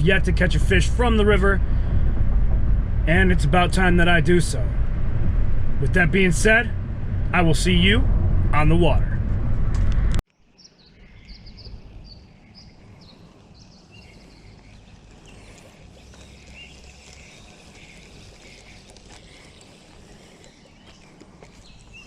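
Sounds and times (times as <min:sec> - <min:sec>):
low background rumble: 0:00.0 - 0:10.2
small birds chirping: 0:10.4 - 0:22.0.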